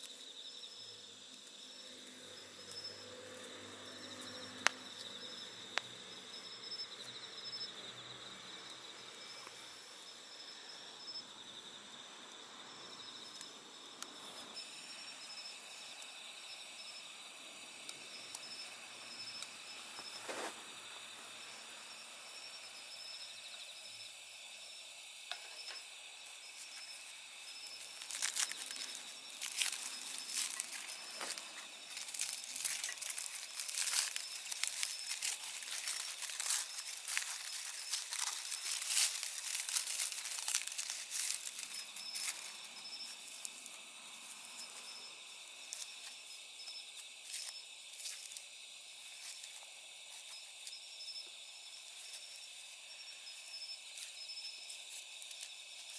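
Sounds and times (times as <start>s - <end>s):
crickets chirping: 0.0s - 55.9s
sharp crackling: 27.7s - 43.6s.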